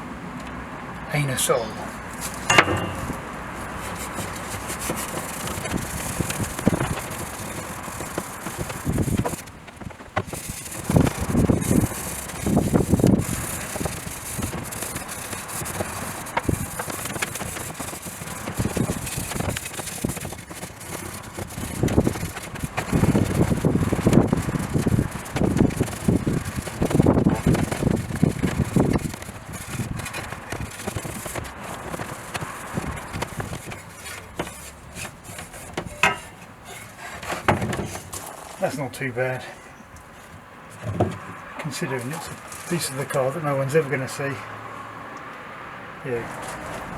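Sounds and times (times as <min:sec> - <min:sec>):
hand scrubbing metal: 0:02.2 - 0:09.4, 0:29.1 - 0:38.9.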